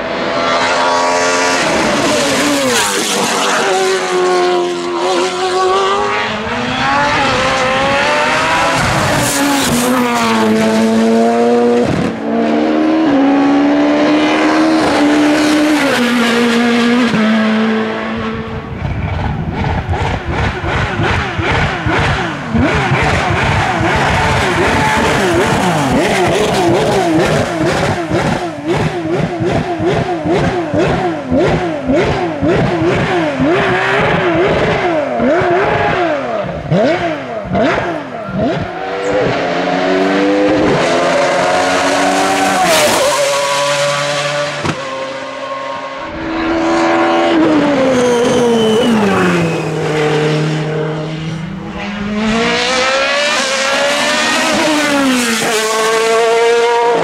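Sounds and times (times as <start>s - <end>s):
race car engines revving: 0.0s - 57.0s.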